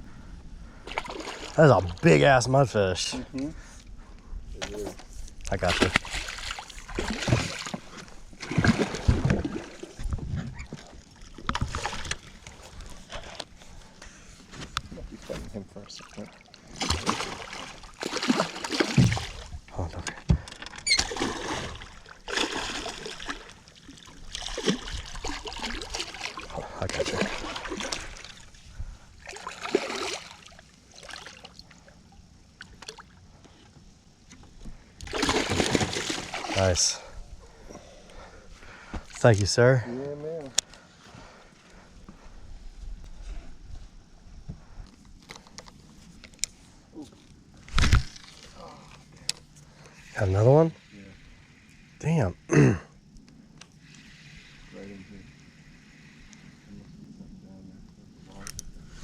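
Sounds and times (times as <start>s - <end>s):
rumble of water and wind: 0.0s - 59.0s
knocks and thumps in boat: 18.1s - 21.7s.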